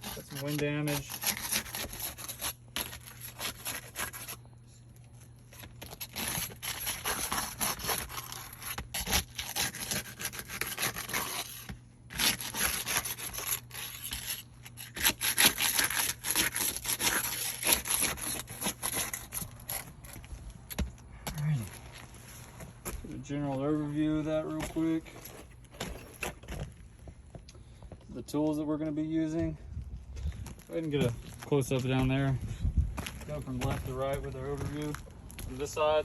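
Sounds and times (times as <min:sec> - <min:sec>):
rubbing and scraping: 0:00.0 - 0:04.4, 0:05.5 - 0:20.9, 0:21.6 - 0:27.0.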